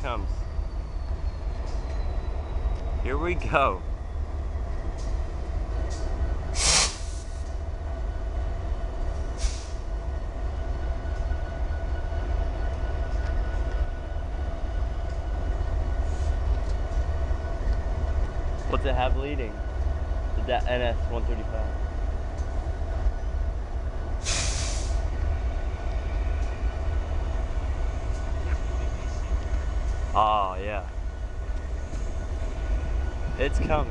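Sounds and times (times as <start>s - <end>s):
freight train rumbling: 0.0s - 33.9s
short hisses: 6.5s - 7.4s, 9.4s - 9.8s, 24.2s - 25.1s.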